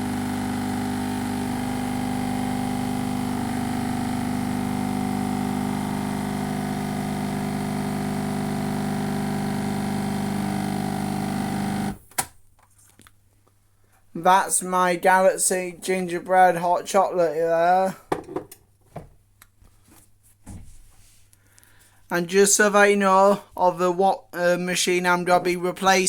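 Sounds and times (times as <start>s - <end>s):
capsule machine pump buzzing: 0.0s - 12.0s.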